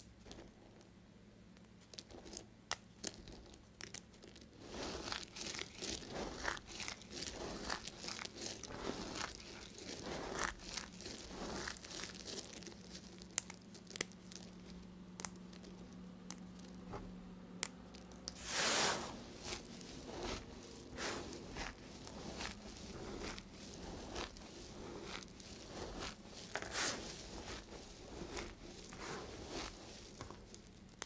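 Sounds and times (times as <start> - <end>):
knife cutting dry soap: 4.6 - 14.1, 18.3 - 31.0.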